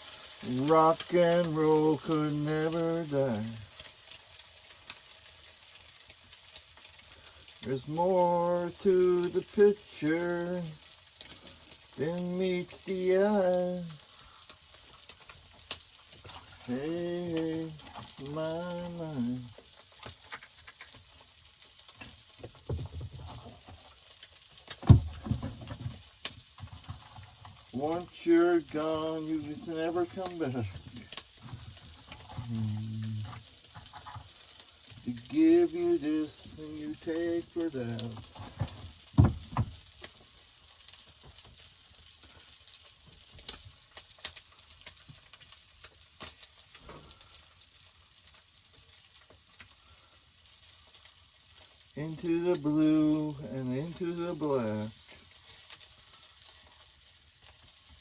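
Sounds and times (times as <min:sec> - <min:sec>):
crackles and pops: 0:00.0 - 0:58.0
eggs sizzling in a pan: 0:00.0 - 0:58.0.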